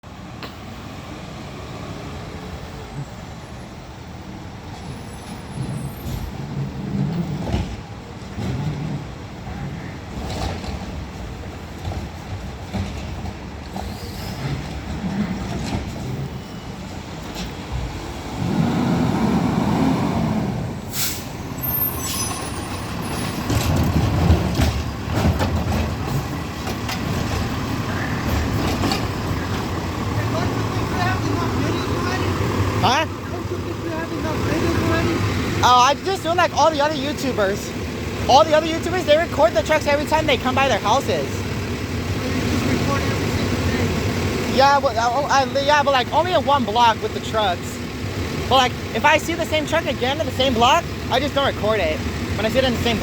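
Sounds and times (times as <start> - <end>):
garbage truck engine running: 4.4 - 53.0
hiss of air: 18.5 - 21.4
clanks and knocks: 23.2 - 27.5.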